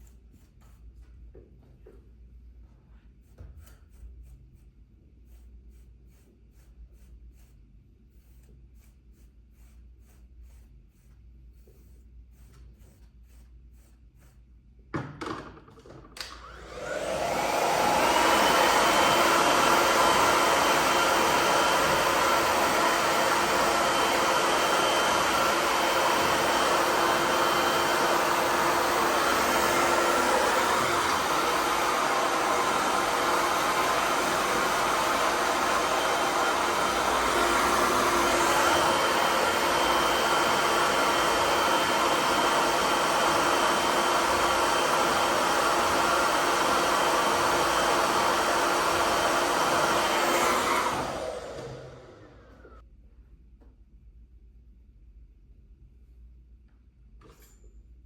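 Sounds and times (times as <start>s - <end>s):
hair dryer running: 16.2s - 52.8s.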